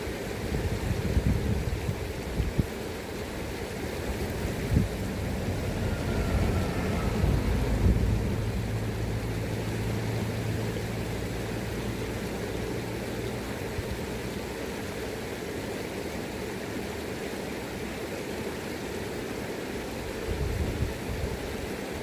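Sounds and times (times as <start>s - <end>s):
river current rushing: 1.2s - 20.4s
low steady hum: 3.0s - 14.3s.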